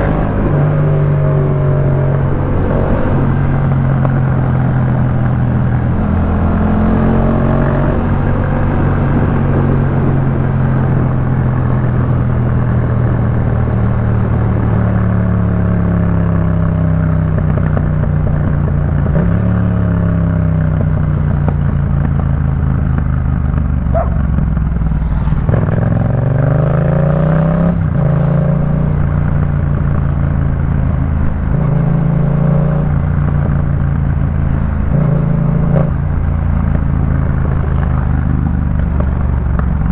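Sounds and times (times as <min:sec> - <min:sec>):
motorcycle engine exhaust note: 0:20.2 - 0:39.9.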